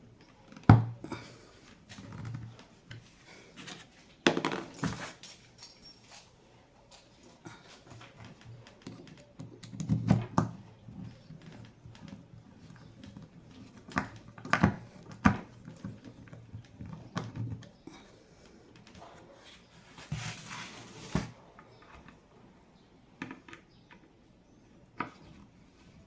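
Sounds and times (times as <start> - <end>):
scraping rustle: 19.1 - 21.4.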